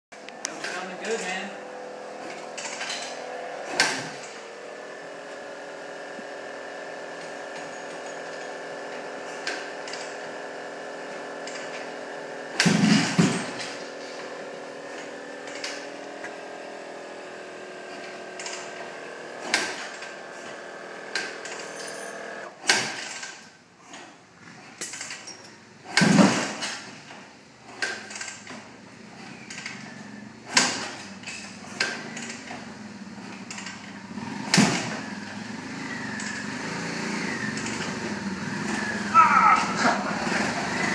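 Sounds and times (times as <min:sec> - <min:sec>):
knocks and clatters: 0:12.6 - 0:13.8
small motor whining: 0:14.0 - 0:22.5, 0:34.1 - 0:40.9.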